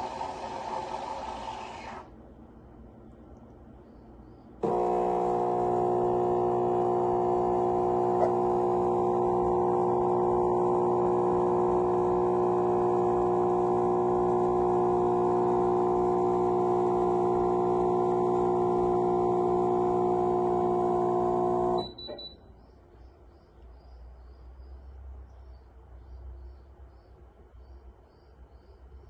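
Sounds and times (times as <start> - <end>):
espresso machine pump humming: 0.0 - 2.1, 4.6 - 22.0.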